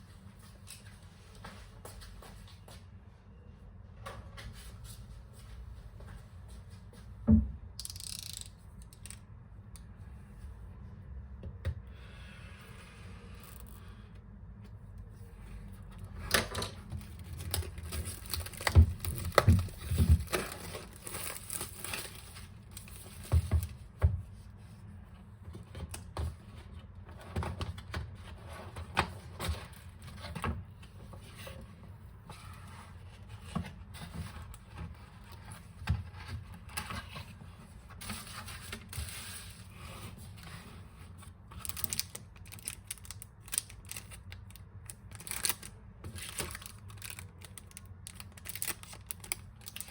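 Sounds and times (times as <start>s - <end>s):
packaging crinkling and tearing: 17.0s - 23.2s, 41.5s - 49.9s.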